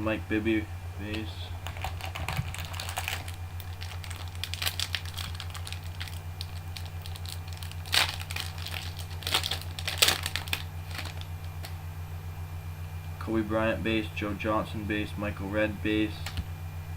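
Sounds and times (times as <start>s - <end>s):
low electrical hum: 0.0s - 16.9s
wrapping crinkling: 1.6s - 11.8s.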